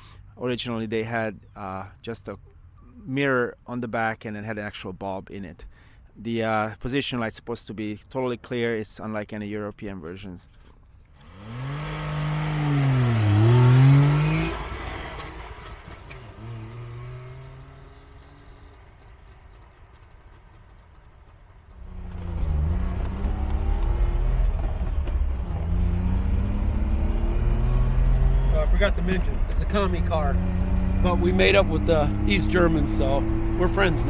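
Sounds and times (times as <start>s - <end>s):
two-stroke car engine pulling away: 11.2s - 34.0s.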